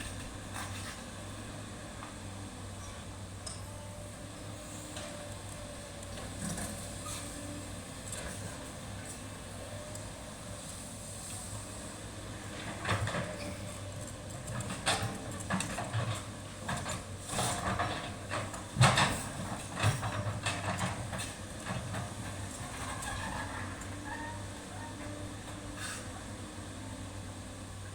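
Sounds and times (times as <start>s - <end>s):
excavator engine running: 0.0s - 27.9s
machine knocks and clanks: 14.4s - 23.0s.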